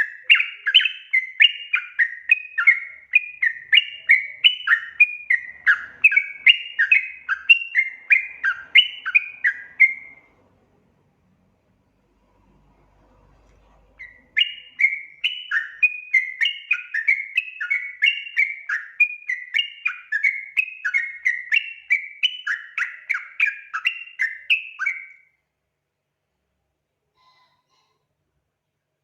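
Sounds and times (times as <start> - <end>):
bulbul song of whistled notes: 0.0 - 10.3, 14.0 - 25.3.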